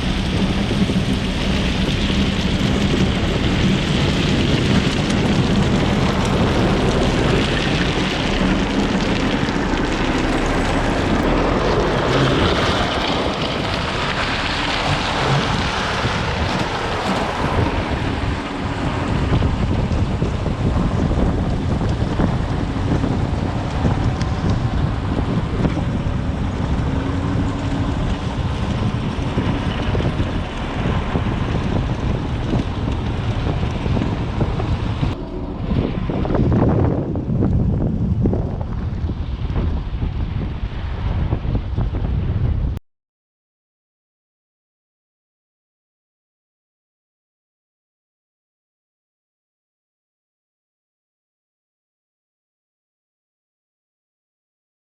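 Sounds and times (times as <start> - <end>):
heavy machinery running: 0.0 - 40.0
wind buffeting microphone: 0.0 - 42.8.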